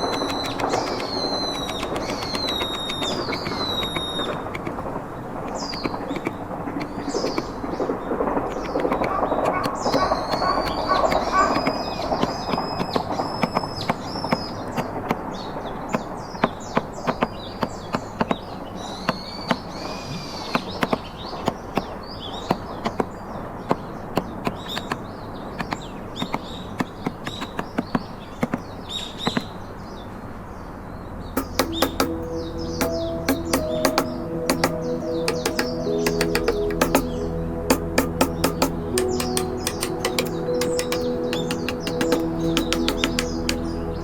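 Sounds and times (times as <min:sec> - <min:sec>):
birds chirping: 0:00.0 - 0:14.6, 0:31.4 - 0:44.0
chisel tapping into wood: 0:08.5 - 0:11.7, 0:31.4 - 0:32.1, 0:32.8 - 0:37.1, 0:37.7 - 0:43.7
steady musical tones: 0:31.4 - 0:44.0.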